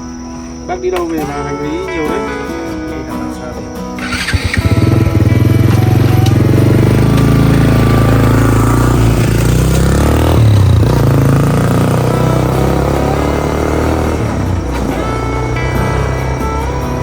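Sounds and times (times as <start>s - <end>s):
motorbike engine running: 4.0s - 17.0s.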